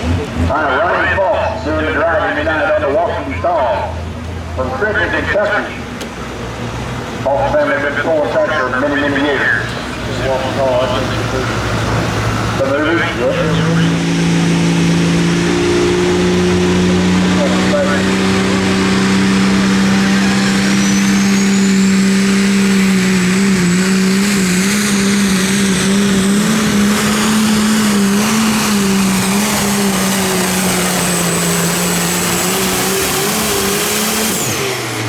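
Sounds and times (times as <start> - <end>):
diesel tractor engine roaring: 0.0 - 35.0
high turbo whistle: 18.2 - 26.8.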